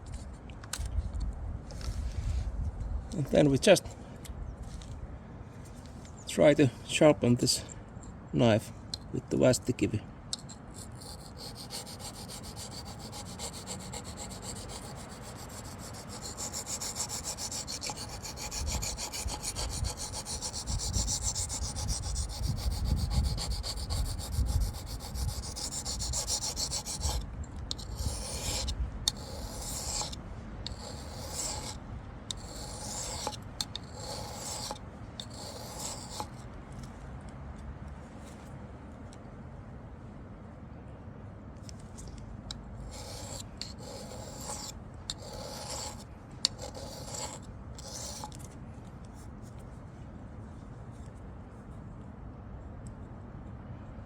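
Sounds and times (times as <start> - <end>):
knife scraping on sharpening stone: 10.4 - 36.4, 42.9 - 48.4.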